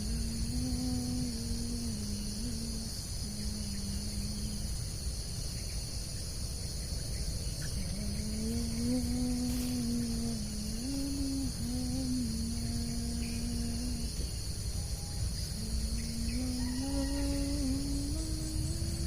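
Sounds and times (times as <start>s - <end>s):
low wavering hum: 0.0s - 5.8s, 7.4s - 19.0s
crickets and insects chorus: 0.0s - 19.0s.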